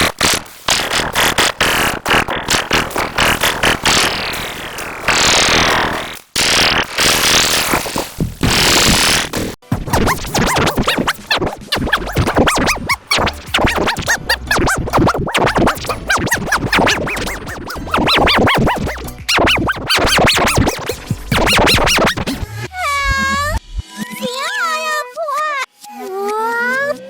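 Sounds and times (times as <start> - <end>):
stuttering processed cartoon song: 9.7 - 24.4.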